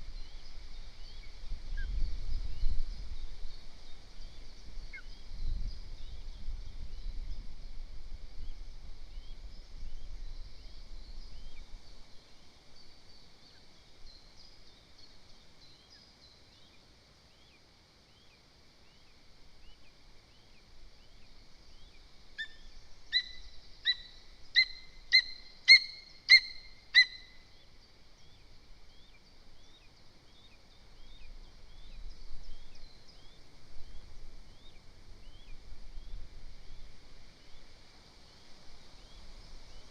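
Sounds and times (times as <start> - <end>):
wind rumble on microphone: 0.0 - 13.2, 30.7 - 39.9
small songbirds chirping: 0.0 - 39.9
eagle calling: 22.4 - 27.4.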